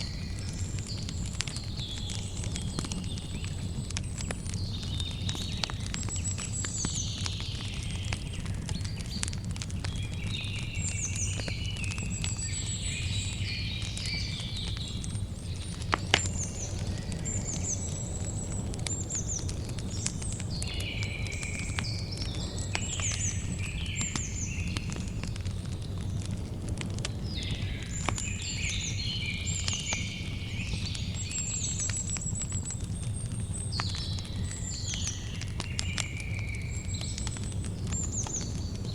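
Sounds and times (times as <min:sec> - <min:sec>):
birds chirping: 0:00.0 - 0:38.9
campfire crackling: 0:00.0 - 0:38.9.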